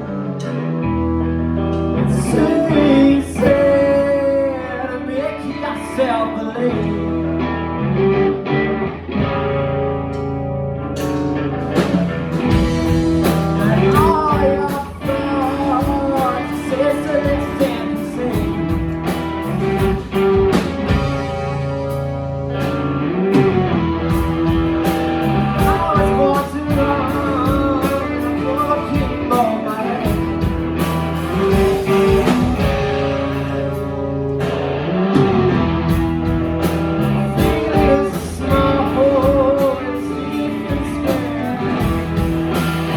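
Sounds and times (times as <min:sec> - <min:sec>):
guitar: 0:00.0 - 0:42.9
person singing: 0:01.7 - 0:07.7, 0:12.7 - 0:20.6, 0:24.8 - 0:34.0, 0:37.0 - 0:42.9
steady low bass notes: 0:06.6 - 0:42.9.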